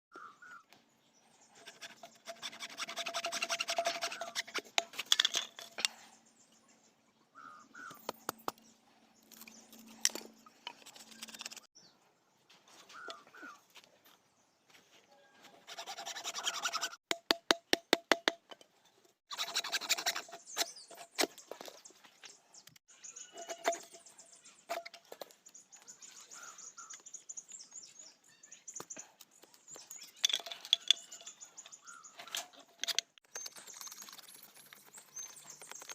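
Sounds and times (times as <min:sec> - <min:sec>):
scraping and cutting bamboo: 0:01.4 - 0:06.1, 0:09.2 - 0:11.7, 0:15.4 - 0:25.5, 0:29.8 - 0:35.9.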